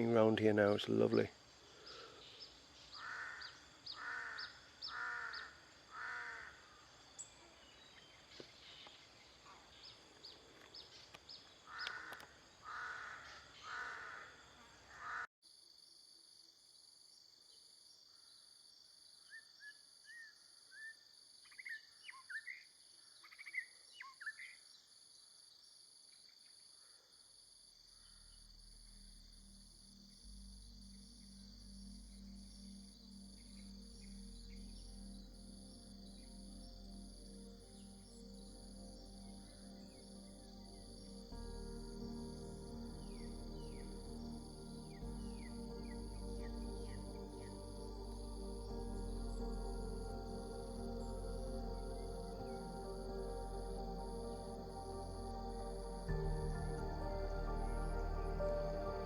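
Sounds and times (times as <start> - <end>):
wild bird calling: 1.9 - 6.8, 11.7 - 15.3
pulsing insect trill: 28.0 - 59.0
low music drone: 28.5 - 59.0.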